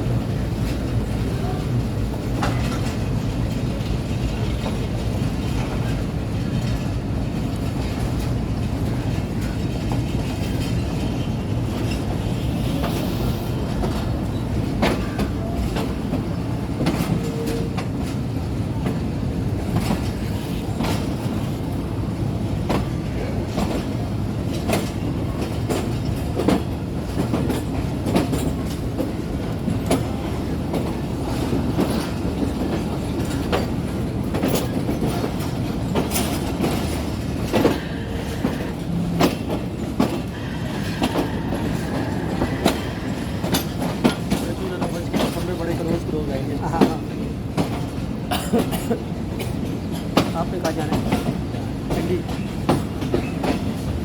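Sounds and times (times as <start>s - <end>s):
train rumbling on tracks: 0.0s - 54.0s
wheels clicking over rails: 22.6s - 54.0s.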